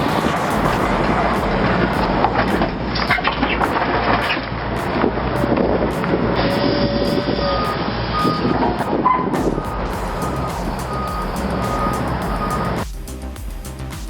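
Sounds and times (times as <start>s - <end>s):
background music: 0.0s - 6.2s, 9.4s - 14.0s
heavy machine diesel engine: 0.0s - 12.8s
reversing alarm beeping: 6.4s - 12.8s.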